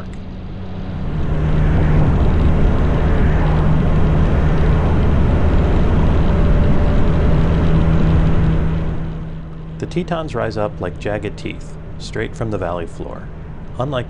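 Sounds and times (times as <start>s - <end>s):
wind rush on microphone: 0.0s - 10.3s
motorcycle engine drone: 0.0s - 14.0s.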